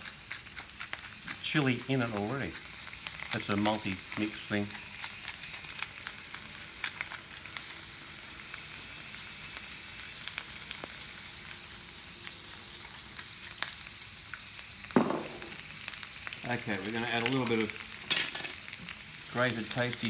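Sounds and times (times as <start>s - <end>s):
potatoes frying in oil: 0.0s - 20.0s
knock: 15.0s - 15.6s.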